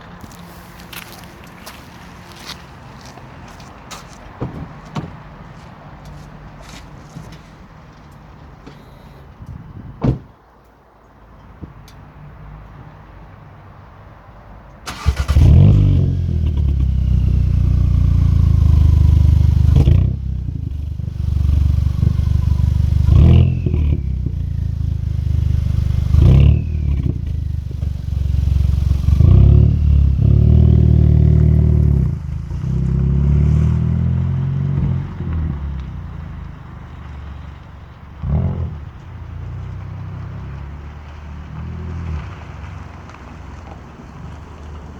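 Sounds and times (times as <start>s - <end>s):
car engine revving: 14.9s - 42.6s.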